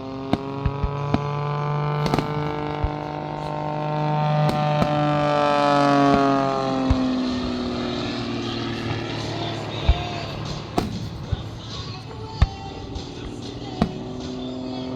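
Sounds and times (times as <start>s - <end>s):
propeller aircraft passing overhead: 0.0s - 14.9s
steady low hum: 0.0s - 14.9s
sharp pops: 2.0s - 5.2s, 9.9s - 14.4s.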